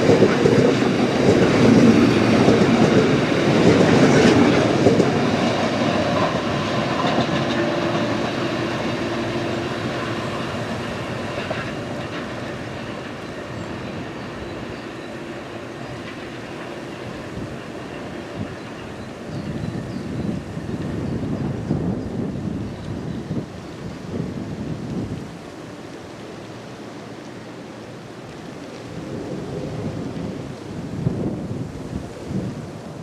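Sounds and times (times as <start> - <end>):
train wheels on track: 0.0 - 27.6.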